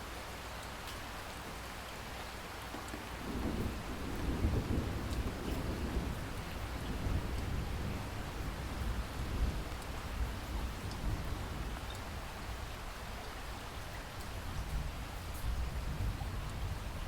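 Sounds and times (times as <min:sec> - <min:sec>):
steady rain: 0:00.0 - 0:17.0
distant thunder rumbling: 0:03.1 - 0:11.8.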